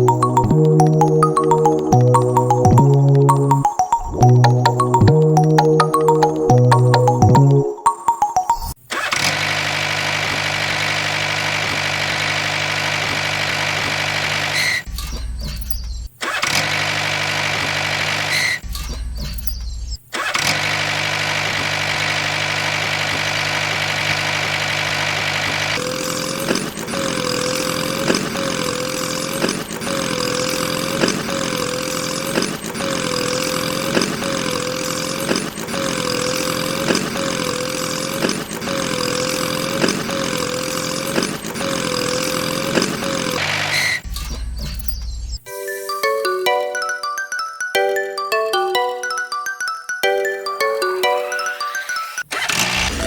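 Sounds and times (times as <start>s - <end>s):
small motor whining: 20.4s - 44.1s, 52.3s - 53.0s.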